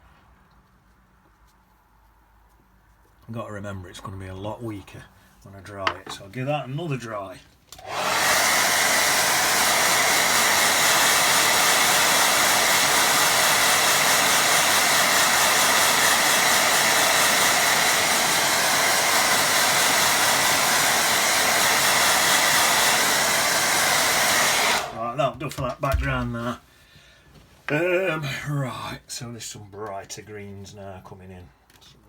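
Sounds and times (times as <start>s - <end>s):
hair dryer running: 7.8s - 25.0s.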